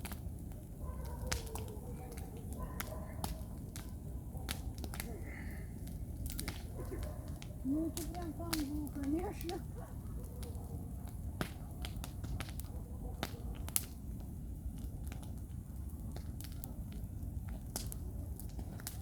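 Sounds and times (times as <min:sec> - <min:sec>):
campfire crackling: 0:00.0 - 0:19.0
sharp pops and snaps: 0:01.0 - 0:15.4, 0:16.1 - 0:19.0.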